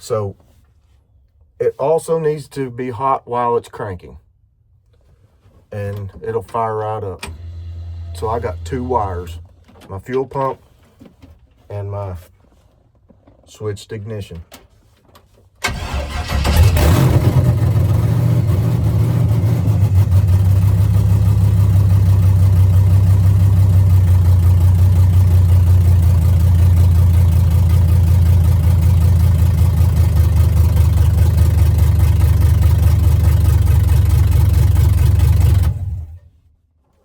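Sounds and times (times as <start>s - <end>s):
loud engine idling without mufflers: 15.7s - 36.2s.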